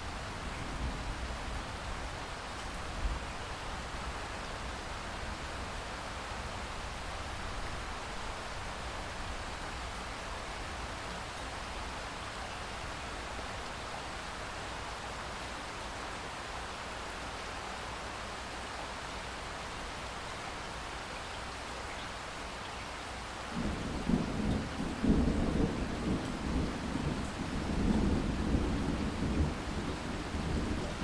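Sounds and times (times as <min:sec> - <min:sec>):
steady rain hiss: 0:00.0 - 0:31.0
thunder rumbling: 0:23.6 - 0:31.0.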